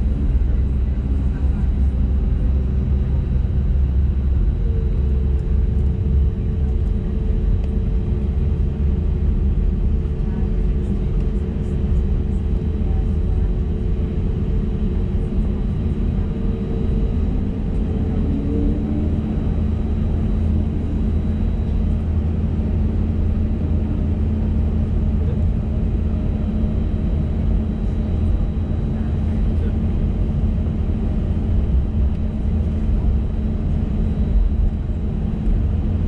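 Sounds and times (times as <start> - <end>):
airplane cabin rumble while taxiing: 0.0 - 36.0
jet engine hum: 0.0 - 36.0.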